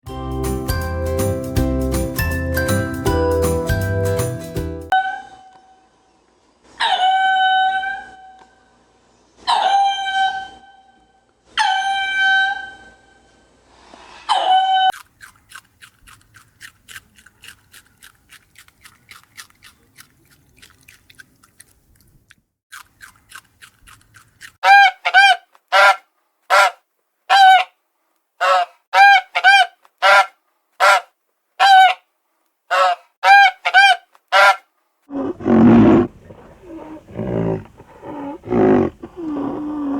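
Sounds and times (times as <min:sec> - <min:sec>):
goose honking: 0:24.6 - 0:27.7, 0:28.4 - 0:31.0, 0:32.7 - 0:34.6.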